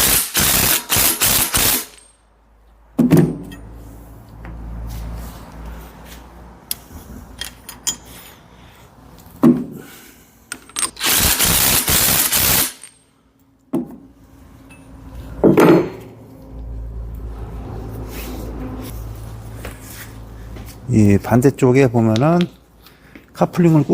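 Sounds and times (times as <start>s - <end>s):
impact wrench: 0.0s - 2.2s, 10.6s - 13.0s
metal parts clinking and knocking: 7.3s - 8.2s, 10.5s - 11.4s.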